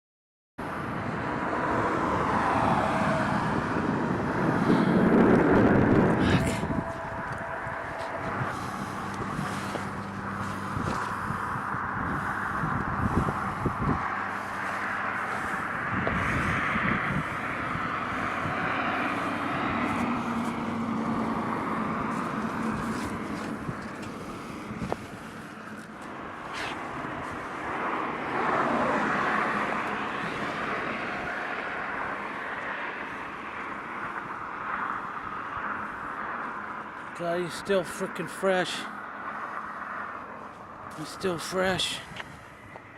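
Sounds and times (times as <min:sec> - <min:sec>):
wind on microphone: 0:00.6 - 0:36.6
low engine hum: 0:00.6 - 0:37.2
road traffic noise: 0:00.6 - 0:42.9
vehicle passing close: 0:00.6 - 0:42.9.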